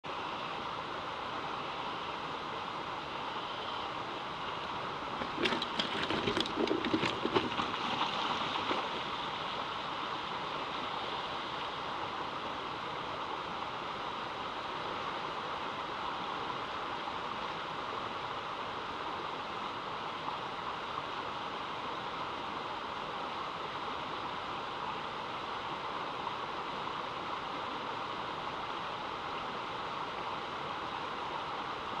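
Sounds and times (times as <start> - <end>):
stream water flowing: 0.0 - 32.0
knocks and splashes: 5.2 - 9.1.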